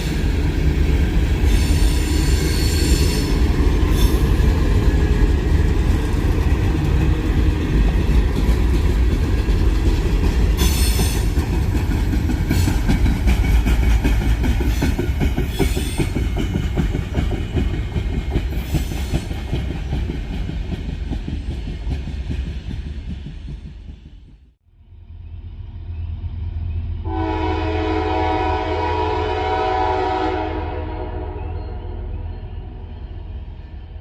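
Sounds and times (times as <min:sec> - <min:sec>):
train wheels clattering on rails: 0:00.0 - 0:24.5
train horn blast: 0:27.1 - 0:31.8.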